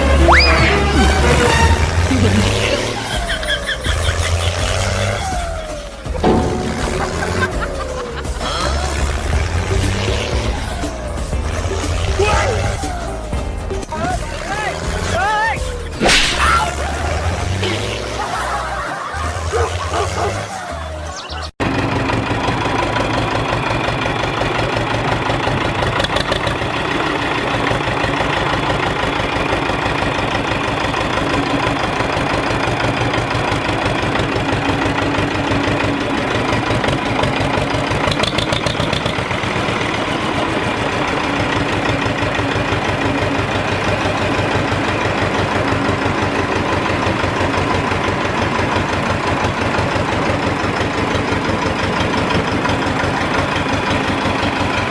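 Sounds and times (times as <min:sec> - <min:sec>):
tractor engine idling: 0:00.0 - 0:54.9
fast even engine knock: 0:21.7 - 0:40.8.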